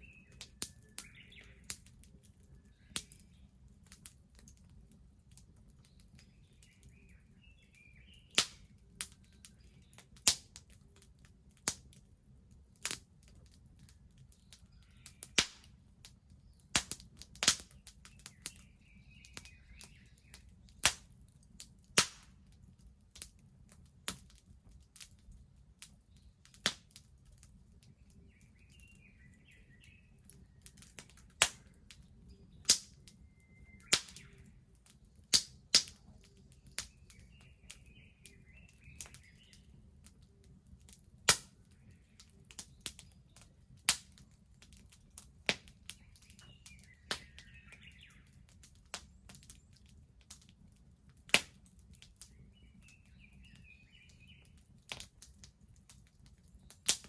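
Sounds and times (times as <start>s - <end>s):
birds chirping: 0.0s - 10.2s, 13.7s - 21.1s, 27.2s - 49.8s, 51.9s - 54.8s
bonfire crackling and popping: 0.0s - 57.0s.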